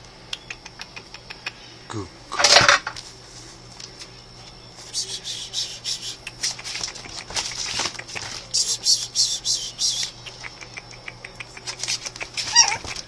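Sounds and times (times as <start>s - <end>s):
puppies scuffling: 6.4s - 8.6s, 11.4s - 13.0s
puppies yipping: 10.6s - 13.0s.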